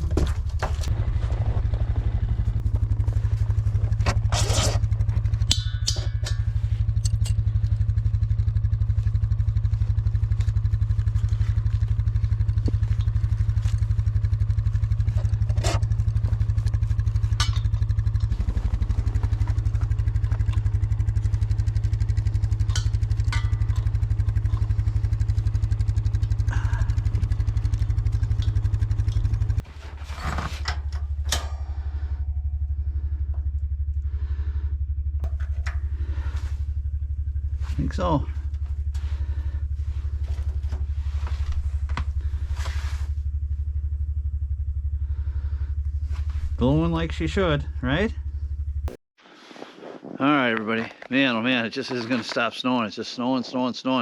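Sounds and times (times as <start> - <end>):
knocks and clatters: 0.0 - 31.9
engine idling: 0.0 - 49.0.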